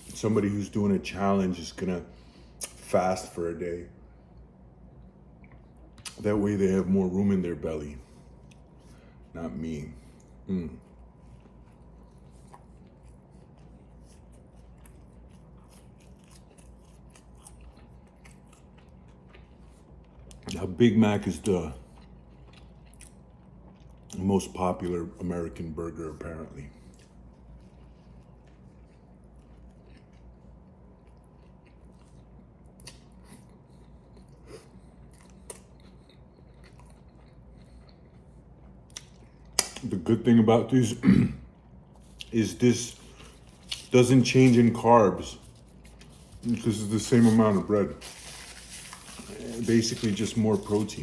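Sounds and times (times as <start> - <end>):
low steady hum: 0.0 - 51.0
person chewing: 8.2 - 9.3, 10.2 - 20.6, 21.8 - 24.2, 26.7 - 39.8, 41.5 - 51.0.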